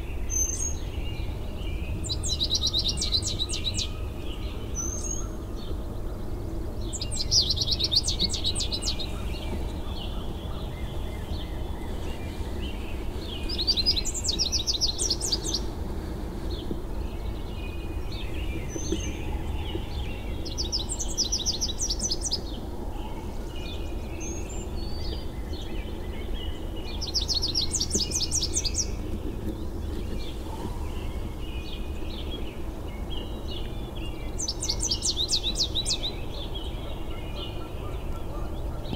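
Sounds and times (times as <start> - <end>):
songbird singing: 0.0 - 38.9
steady low rumble: 0.0 - 38.9
bird chirps: 17.1 - 38.9.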